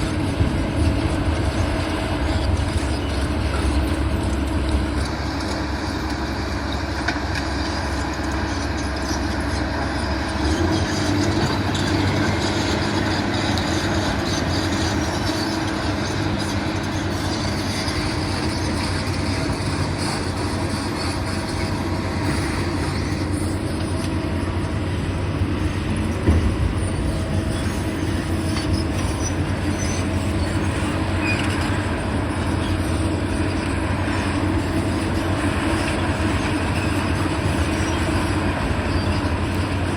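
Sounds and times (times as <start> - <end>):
demolition machinery rumbling: 0.0 - 39.9
loud mechanical knock: 26.2 - 27.2.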